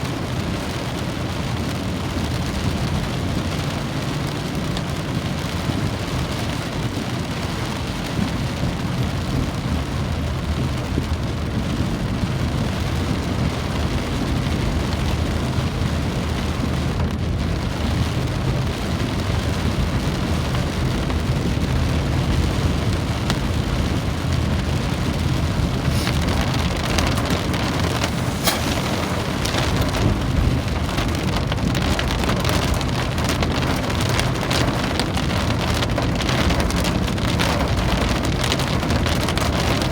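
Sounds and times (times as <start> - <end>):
steady rain falling: 0.0 - 39.9
low rumble: 20.9 - 34.2
single raindrop taps: 25.8 - 30.5.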